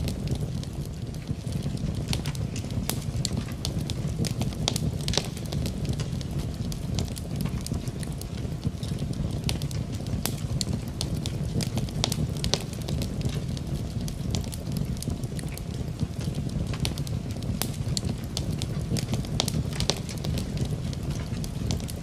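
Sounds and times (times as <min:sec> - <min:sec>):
rain rushing: 0:00.0 - 0:22.0
wood fire crackling: 0:00.0 - 0:22.0.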